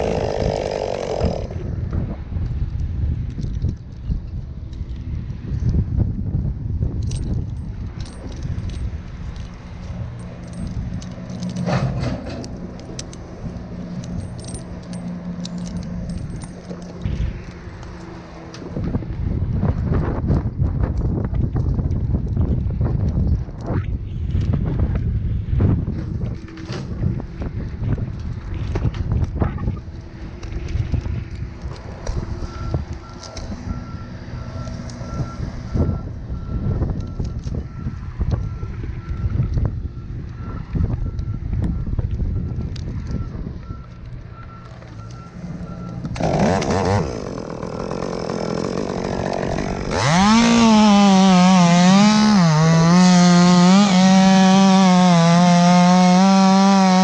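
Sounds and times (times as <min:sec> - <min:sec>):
wind rumbling on microphone: 0:00.0 - 0:51.3
low engine hum: 0:01.2 - 0:53.6
metal climbing gear clinking: 0:06.9 - 0:18.6
reversing alarm beeping: 0:32.4 - 0:46.1.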